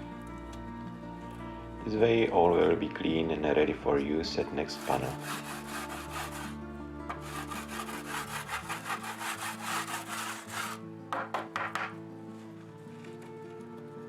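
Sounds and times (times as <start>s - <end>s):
background music: 0.0s - 14.0s
scraping on wooden board: 4.7s - 11.9s.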